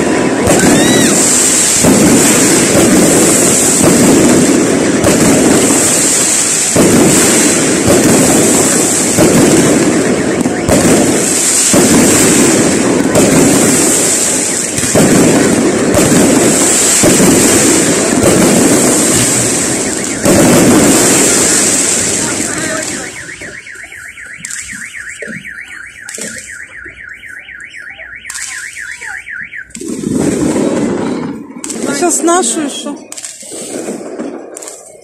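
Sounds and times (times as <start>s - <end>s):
car alarm warbling wail: 0.0s - 2.7s, 8.2s - 12.9s, 18.8s - 29.8s
fireworks crackling bursts: 0.0s - 35.0s.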